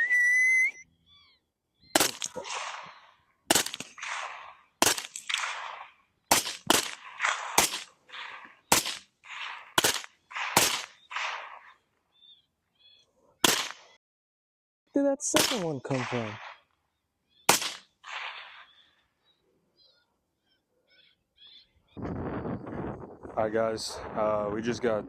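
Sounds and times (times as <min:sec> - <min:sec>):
rifle shots with rolling echo: 0:02.0 - 0:11.8, 0:13.4 - 0:14.0, 0:15.4 - 0:16.7, 0:17.4 - 0:18.9.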